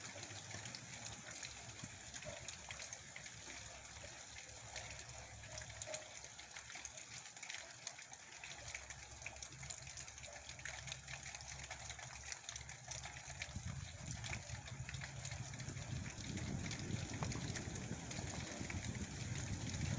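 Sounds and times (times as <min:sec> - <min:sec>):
heavy rain falling: 0:15.6 - 0:19.9.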